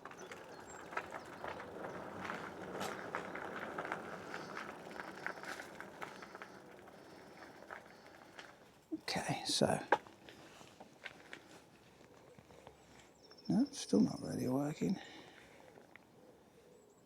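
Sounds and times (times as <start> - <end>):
handling clicks and rustles: 0.0 - 13.2.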